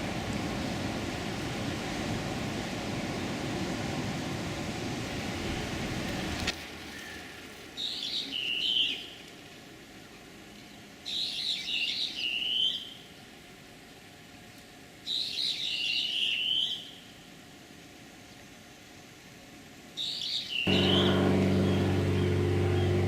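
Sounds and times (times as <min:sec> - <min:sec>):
kingfisher whistled calls: 0:20.0 - 0:23.0.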